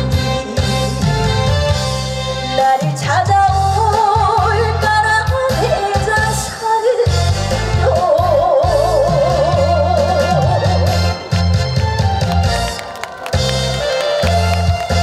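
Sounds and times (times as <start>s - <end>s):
woman singing with vibrato: 0.0s - 1.4s, 2.5s - 11.0s
live band accompaniment: 0.0s - 15.0s.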